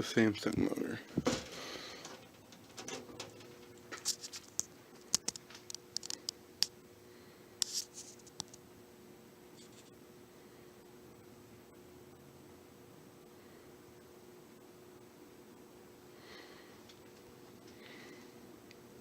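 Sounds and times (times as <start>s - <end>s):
fan motor humming: 0.0s - 19.0s
irregular ticks and clicks: 3.8s - 6.8s.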